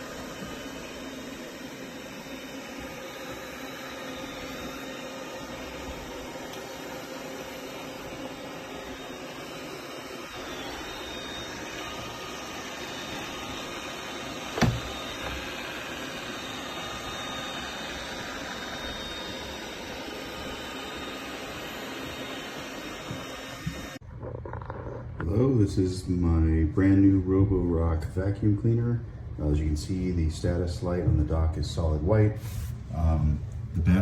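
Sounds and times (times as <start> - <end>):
robot vacuum whirring: 0.0 - 24.0.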